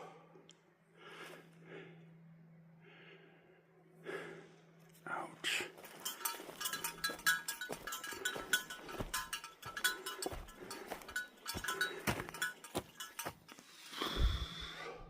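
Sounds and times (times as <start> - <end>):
footsteps on forest trail: 5.5 - 14.5
small metal item clinking: 5.9 - 13.6.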